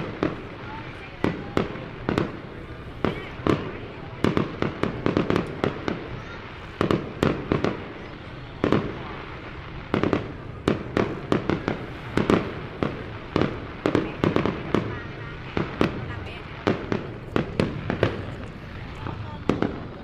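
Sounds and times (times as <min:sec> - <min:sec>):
fireworks bangs: 0:00.0 - 0:20.0.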